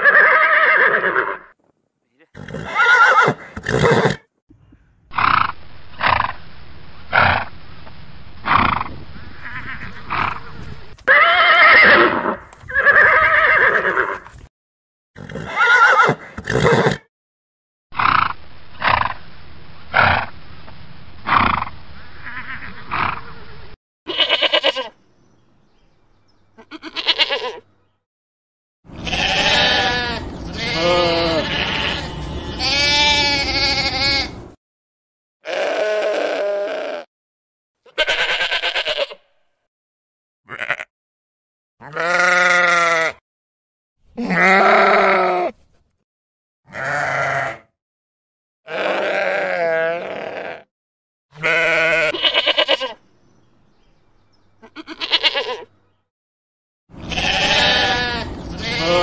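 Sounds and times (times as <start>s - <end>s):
horse whinnying: 0.0s - 1.5s, 2.4s - 4.2s, 11.1s - 14.3s, 15.2s - 17.0s, 44.2s - 45.5s
lamb bleating: 9.4s - 12.0s, 22.2s - 23.1s, 24.1s - 24.9s, 26.6s - 27.6s, 29.0s - 34.4s, 35.4s - 37.1s, 37.8s - 39.3s, 40.5s - 40.9s, 41.8s - 43.2s, 44.2s - 45.5s, 46.7s - 47.7s, 48.7s - 50.7s, 51.3s - 53.0s, 54.6s - 55.7s, 57.0s - 59.0s.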